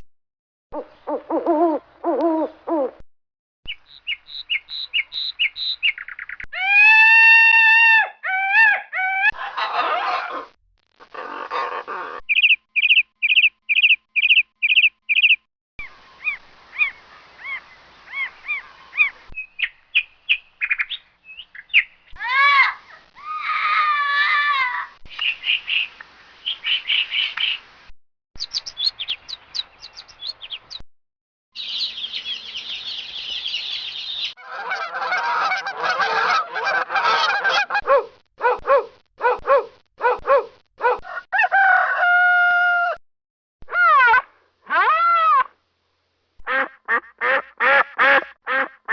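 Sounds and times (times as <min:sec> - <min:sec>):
bird chirps: 0:03.7 - 0:06.6, 0:12.3 - 0:22.2, 0:28.4 - 0:30.8, 0:31.6 - 0:34.4
goose honking: 0:34.4 - 0:37.8.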